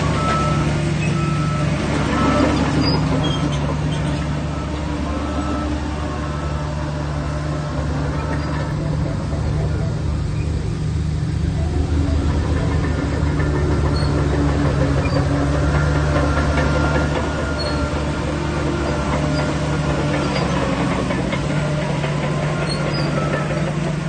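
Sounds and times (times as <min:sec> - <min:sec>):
bulldozer diesel engine running: 0:00.0 - 0:24.0.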